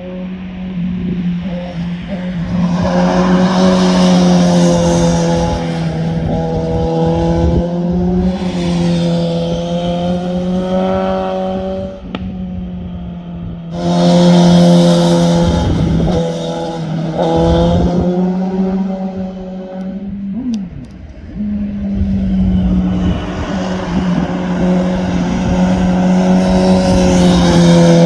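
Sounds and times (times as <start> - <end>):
motorcycle engines revving high: 0.0 - 28.0.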